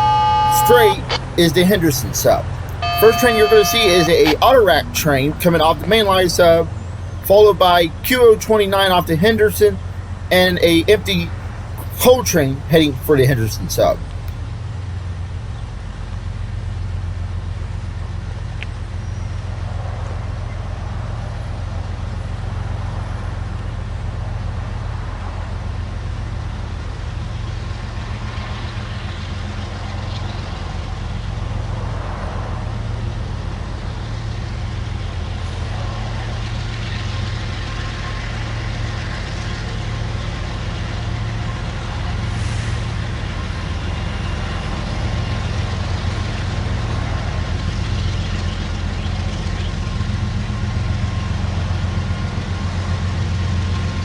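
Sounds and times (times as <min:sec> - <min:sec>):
diesel locomotive engine drone: 0:00.0 - 0:54.0
rushing noise of passing train: 0:30.5 - 0:54.0.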